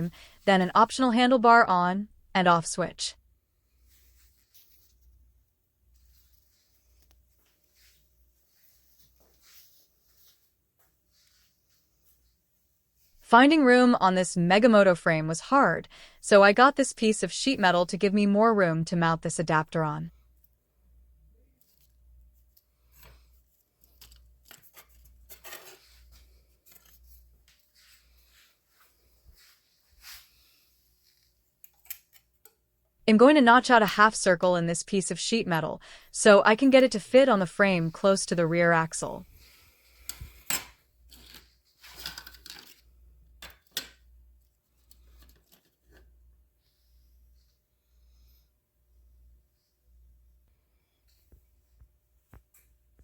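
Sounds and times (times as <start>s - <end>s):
low steady hum: 0.0s - 9.9s, 12.6s - 29.6s, 32.8s - 41.4s
small parts clicking and scraping: 40.1s - 43.8s.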